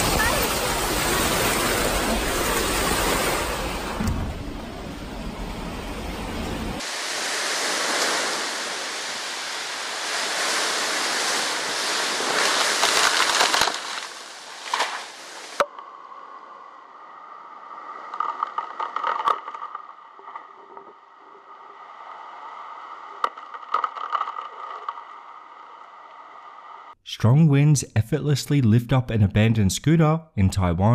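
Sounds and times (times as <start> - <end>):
storm wind and heavy rain: 0.0 - 27.0
sharp clicks and rattles: 18.1 - 20.9, 23.2 - 25.2.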